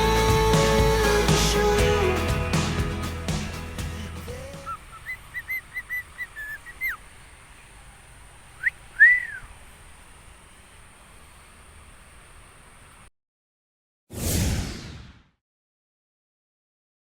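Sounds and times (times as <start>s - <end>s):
background music: 0.0s - 4.8s
person whistling notes: 9.0s - 9.4s.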